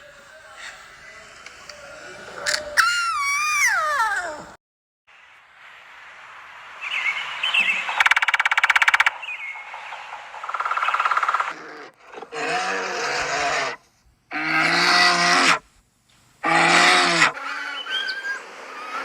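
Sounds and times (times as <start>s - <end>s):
drawn-out pitched animal calls: 11.2s - 15.6s, 16.4s - 19.0s.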